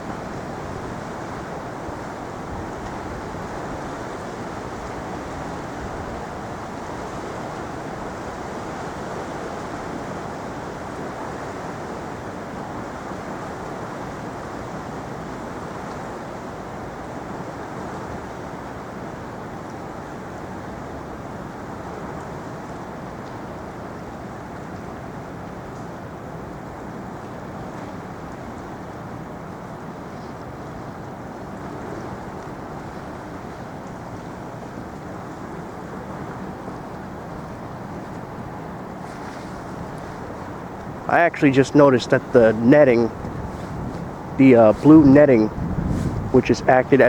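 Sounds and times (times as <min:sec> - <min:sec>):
steady rushing ambient noise: 0:37.4 - 0:47.0.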